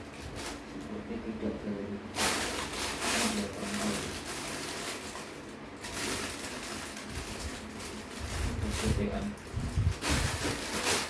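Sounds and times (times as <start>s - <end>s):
packaging rustling: 2.2s - 11.0s.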